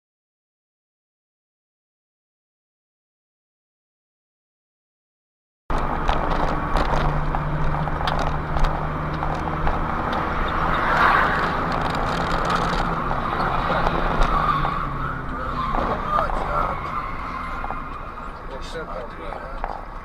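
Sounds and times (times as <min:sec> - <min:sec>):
car engine while driving: 0:05.7 - 0:20.0
tyre road noise: 0:05.7 - 0:20.0.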